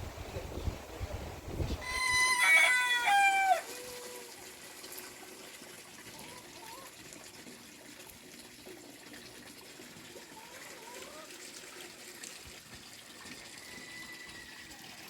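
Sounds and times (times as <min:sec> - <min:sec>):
faint running water: 0:00.0 - 0:15.0
rooster crowing: 0:01.8 - 0:04.2, 0:13.5 - 0:15.0.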